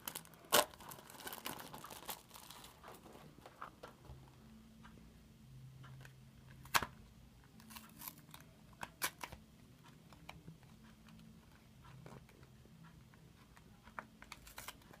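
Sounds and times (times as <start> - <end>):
plastic packaging clicks and crinkles: 0.0 - 4.0, 13.9 - 15.0.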